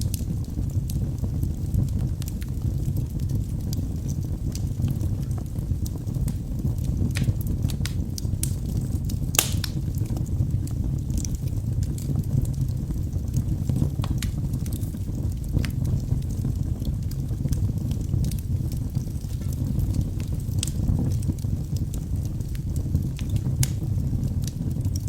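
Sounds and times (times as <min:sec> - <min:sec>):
fire flames rumbling: 0:00.0 - 0:25.0
logs crackling and popping: 0:00.0 - 0:25.0.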